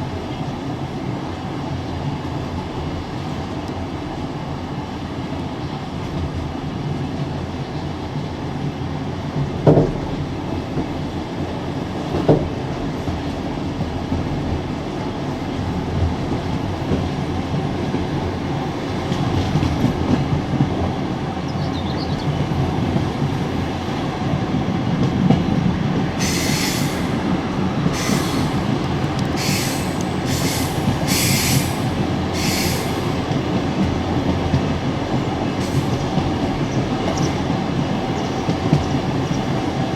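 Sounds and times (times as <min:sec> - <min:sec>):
train wheels rumbling on rails: 0:00.0 - 0:39.9
short hissing bursts: 0:27.9 - 0:28.7, 0:29.4 - 0:33.1.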